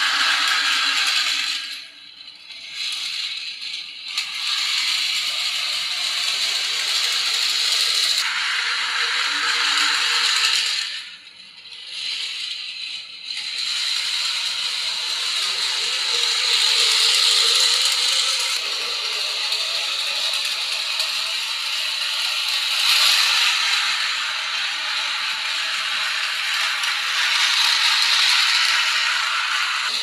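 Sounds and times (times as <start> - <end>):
model train rattling along track: 0.0 - 30.0.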